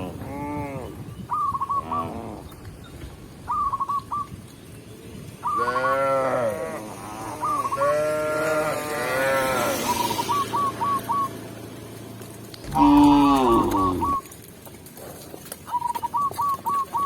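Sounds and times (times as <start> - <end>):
cow mooing: 5.6 - 9.8, 12.6 - 14.2
high bird calls: 9.7 - 11.4, 12.6 - 14.3.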